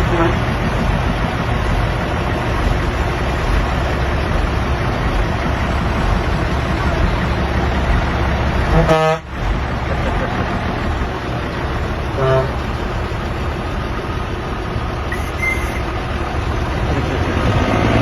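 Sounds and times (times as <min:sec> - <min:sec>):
truck horn toot: 0:00.0 - 0:00.5, 0:08.6 - 0:09.4, 0:12.1 - 0:12.7, 0:15.1 - 0:15.9
truck engine rumbling: 0:00.0 - 0:18.0.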